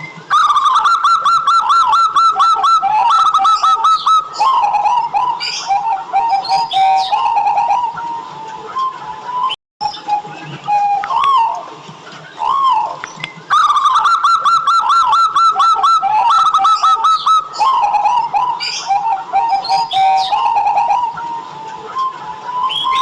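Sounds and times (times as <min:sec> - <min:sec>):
dove cooing: 0:00.0 - 0:23.0
high bird chirps: 0:00.3 - 0:08.2, 0:12.2 - 0:21.5, 0:22.1 - 0:23.0.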